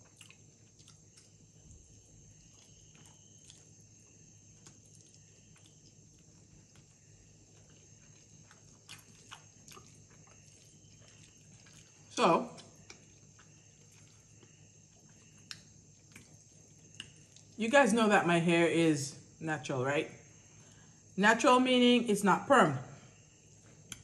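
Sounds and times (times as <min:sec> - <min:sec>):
person chewing noodles: 0:00.0 - 0:17.6
low steady hum: 0:00.0 - 0:24.0.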